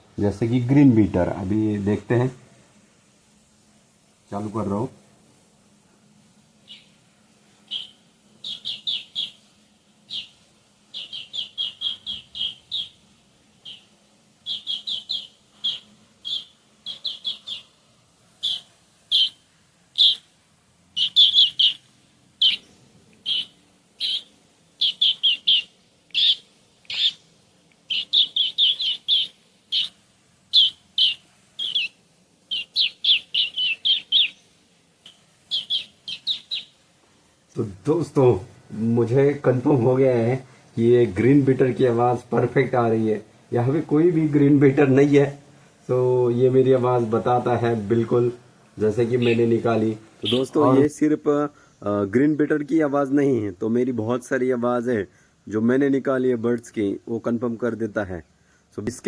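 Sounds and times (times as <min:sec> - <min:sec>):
man imitating bird call: 0:50.2 - 0:50.9.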